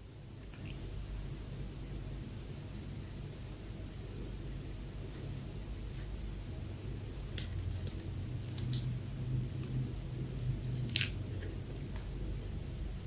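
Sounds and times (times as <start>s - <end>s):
steady low hum: 0.0s - 13.0s
soft clicks and crackles of eating: 0.4s - 0.9s, 7.2s - 9.9s, 10.7s - 12.4s.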